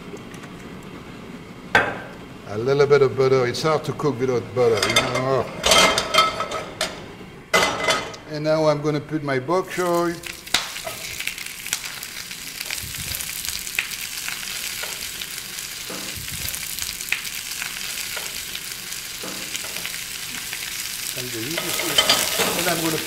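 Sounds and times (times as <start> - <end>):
oil crackling and popping: 9.8 - 23.0
vegetables sizzling in oil: 9.8 - 23.0.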